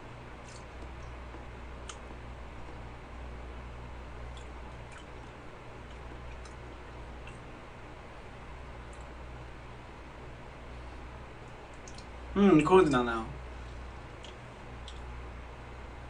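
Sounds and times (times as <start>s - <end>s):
low electrical hum: 0.0s - 16.0s
mouth clicks while chewing: 4.3s - 6.6s, 11.7s - 12.1s, 14.2s - 15.1s.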